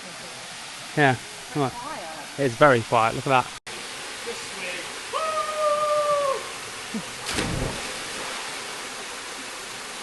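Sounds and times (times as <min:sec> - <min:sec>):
waterfall rushing: 0:00.0 - 0:10.0
splash into water: 0:07.2 - 0:08.7.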